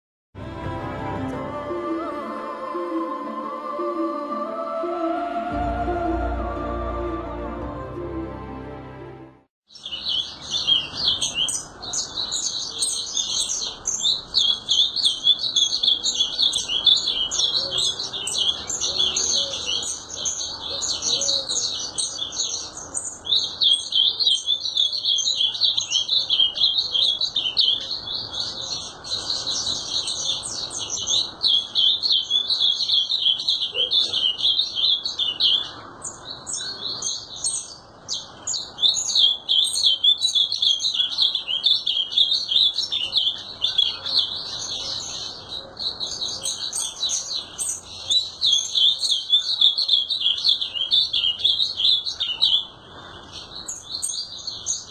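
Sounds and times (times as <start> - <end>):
bird singing warbled notes: 0.7 - 10.6.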